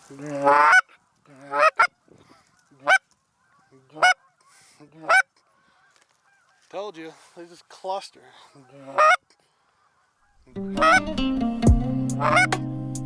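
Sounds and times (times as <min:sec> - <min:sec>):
goose honking: 0:00.0 - 0:06.7, 0:08.5 - 0:11.2, 0:12.1 - 0:12.6.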